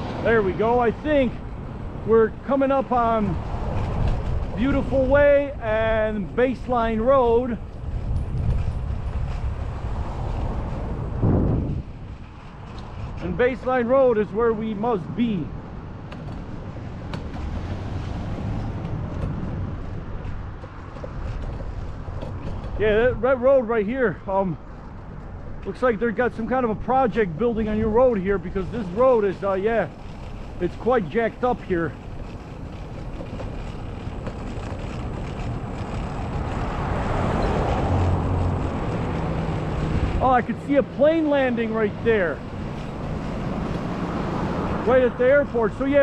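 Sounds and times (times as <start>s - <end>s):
wind on microphone: 0.0s - 13.3s
road traffic noise: 0.0s - 46.0s
vehicle engine hum: 0.0s - 46.0s.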